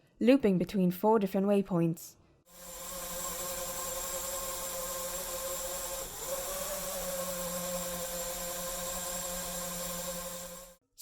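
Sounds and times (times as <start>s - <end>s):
drone motors whining: 2.5s - 10.8s.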